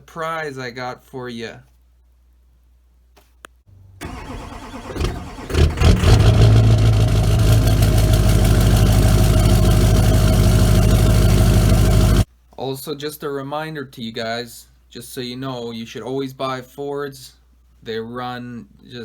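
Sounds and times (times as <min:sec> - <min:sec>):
diesel engine idling: 0:04.0 - 0:12.3
starter cranking: 0:04.0 - 0:12.3.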